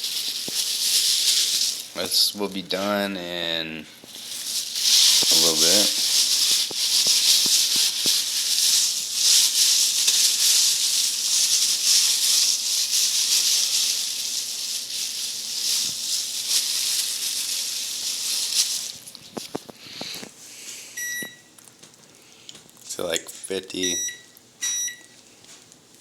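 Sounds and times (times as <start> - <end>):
steak sizzling in a frying pan: 4.0 - 19.0.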